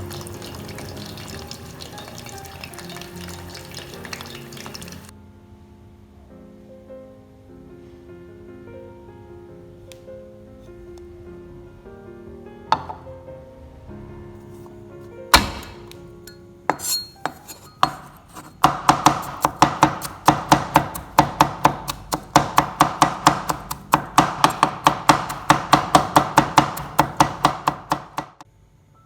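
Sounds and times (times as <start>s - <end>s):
soft background music: 0.0s - 28.0s
knife chopping on cutting board: 15.3s - 16.0s, 16.7s - 28.4s.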